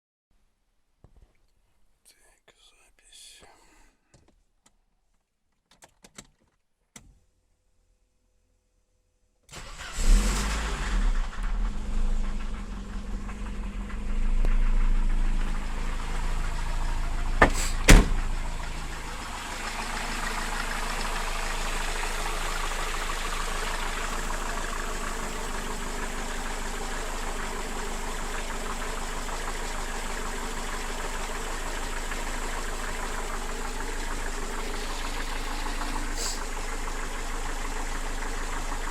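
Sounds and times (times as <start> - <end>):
car engine starting and idling: 9.5 - 38.9
sharp knocks: 17.4 - 18.2.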